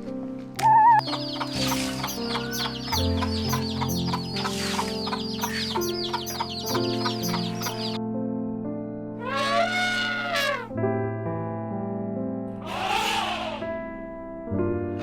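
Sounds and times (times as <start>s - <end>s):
background music with sustained notes: 0.0s - 15.0s
birds chirping: 0.6s - 8.0s.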